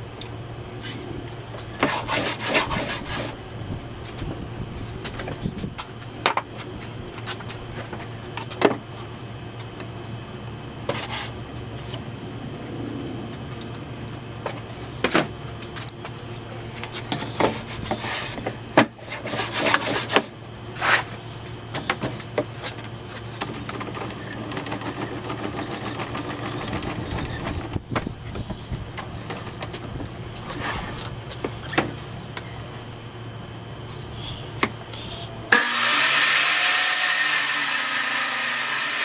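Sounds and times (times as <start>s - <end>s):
steady low hum: 0.0s - 35.8s
short scraping sounds: 20.8s - 21.4s, 30.4s - 31.2s.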